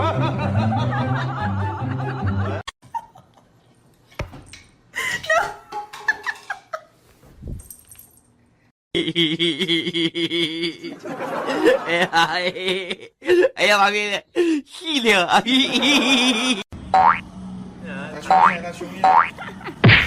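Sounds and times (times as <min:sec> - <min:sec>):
laughter: 0:00.0 - 0:03.5, 0:05.0 - 0:06.9, 0:09.0 - 0:13.5, 0:15.0 - 0:16.7, 0:19.3 - 0:19.8.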